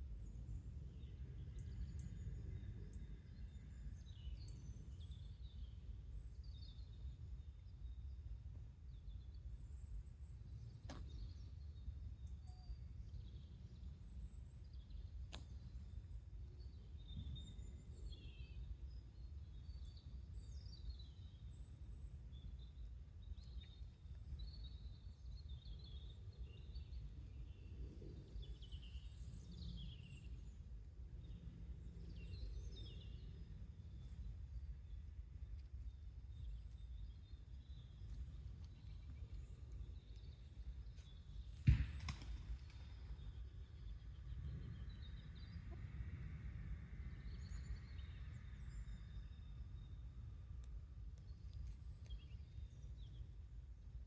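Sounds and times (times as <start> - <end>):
low outdoor rumble: 0.0 - 54.0
small birds chirping: 47.1 - 53.5.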